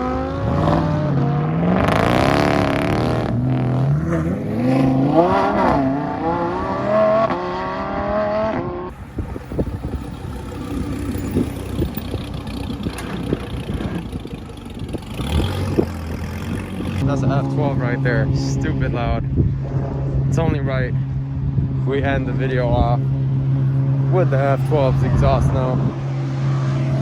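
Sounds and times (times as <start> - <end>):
car engine revving: 0.0 - 27.0
clatter: 9.7 - 17.0.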